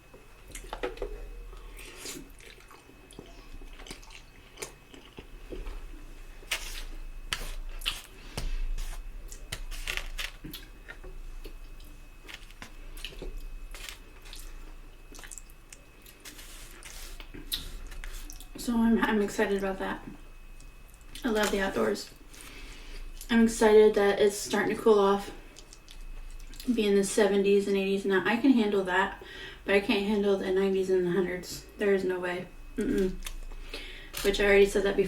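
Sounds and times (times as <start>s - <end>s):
person chewing with wet smacking: 0.4s - 18.6s, 25.5s - 26.7s.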